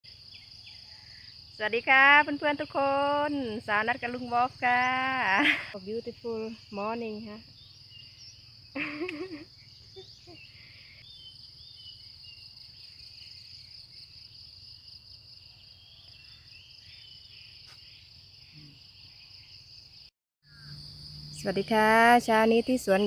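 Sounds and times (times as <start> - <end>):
insects chirping chorus: 0.1 - 23.0
faint birds chirping: 4.0 - 21.5.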